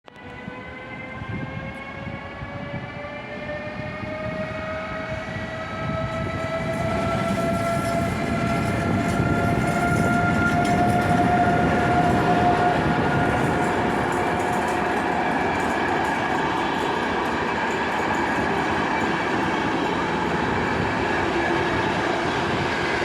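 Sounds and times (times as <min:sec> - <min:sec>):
train traction motor whine: 0:00.2 - 0:23.0
train rolling rumble: 0:00.3 - 0:23.0.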